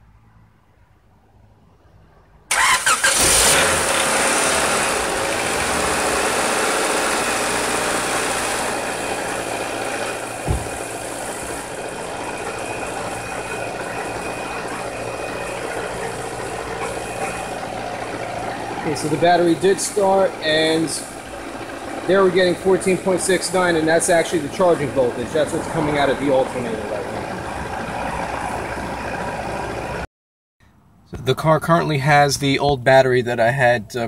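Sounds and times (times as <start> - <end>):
car engine starting and idling: 2.5 - 30.1
low thump: 10.4 - 10.9.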